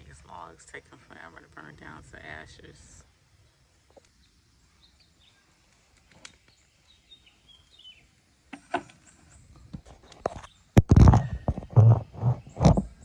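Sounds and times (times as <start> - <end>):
faint bird chirps: 3.3 - 11.6.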